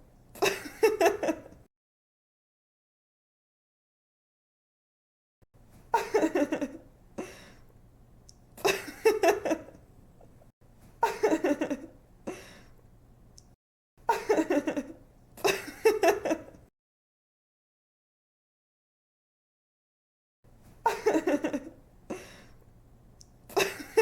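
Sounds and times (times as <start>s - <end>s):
young woman laughing: 0.4s - 1.6s, 5.9s - 6.8s, 8.6s - 9.8s, 11.0s - 12.5s, 14.1s - 16.6s, 20.8s - 21.8s, 23.5s - 24.0s.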